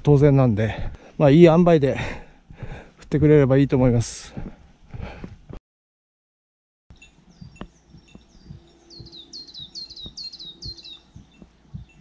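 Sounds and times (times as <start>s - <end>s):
songbird whistling: 7.0s - 12.0s.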